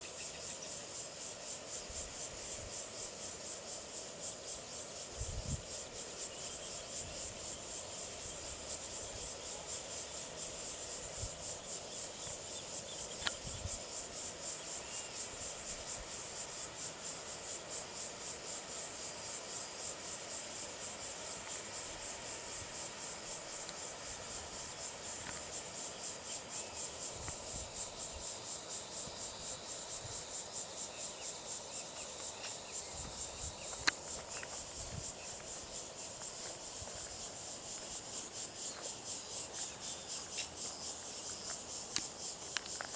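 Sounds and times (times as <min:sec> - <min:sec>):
insect chorus trilling: 0:00.0 - 0:42.9.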